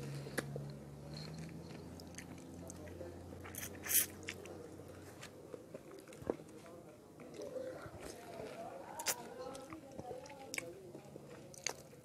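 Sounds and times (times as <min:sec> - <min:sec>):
wet chewing of fruit: 0:00.3 - 0:04.6, 0:07.2 - 0:12.0.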